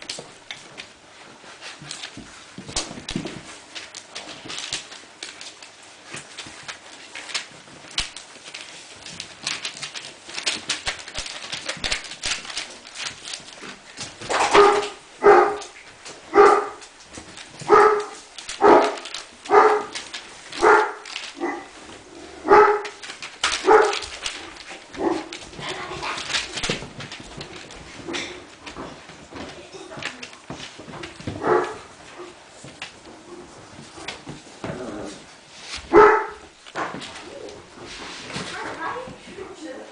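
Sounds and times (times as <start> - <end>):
faint clicking and scuffling: 0.0 - 39.9
puppy barking: 14.4 - 16.8, 17.7 - 20.0, 20.6 - 21.7, 22.4 - 23.0, 23.6 - 24.0, 31.4 - 32.3, 35.9 - 36.5.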